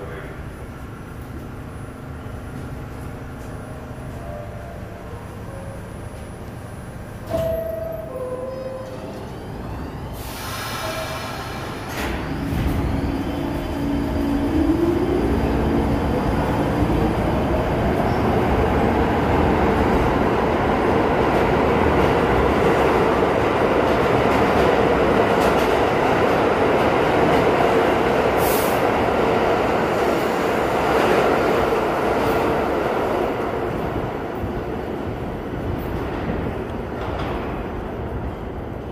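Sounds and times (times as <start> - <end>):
subway train wheels rumbling: 0.0 - 38.9.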